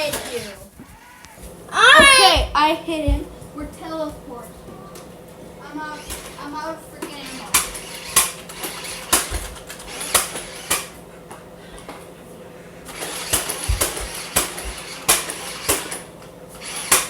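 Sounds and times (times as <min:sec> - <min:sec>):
plastic toy blaster clicks: 0:07.5 - 0:10.9, 0:13.0 - 0:16.0, 0:16.6 - 0:17.0.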